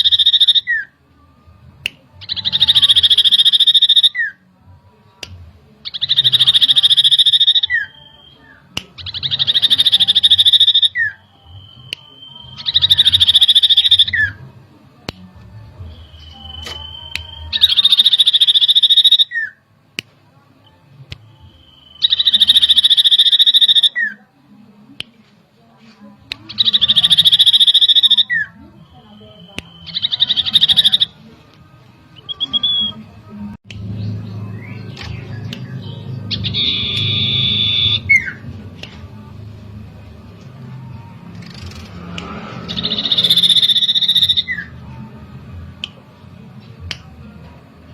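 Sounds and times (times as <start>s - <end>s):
bird buzzy trills: 0.0s - 0.9s, 2.2s - 4.3s, 5.8s - 14.4s, 15.9s - 19.6s, 21.4s - 24.2s, 26.5s - 31.2s, 34.0s - 38.4s, 41.3s - 44.7s
bird steady whistle: 0.0s - 0.9s, 2.3s - 4.4s, 5.9s - 14.4s, 15.9s - 19.6s, 21.2s - 24.2s, 26.6s - 31.2s, 32.2s - 33.0s, 36.4s - 38.4s, 42.7s - 44.7s.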